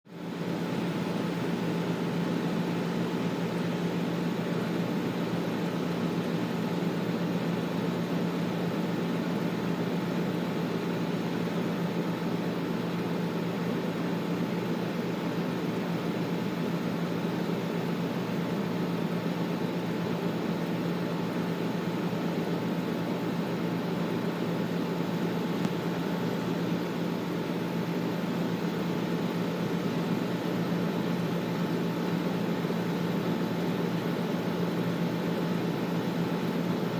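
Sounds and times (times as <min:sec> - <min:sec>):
air conditioner humming: 0:00.1 - 0:36.9.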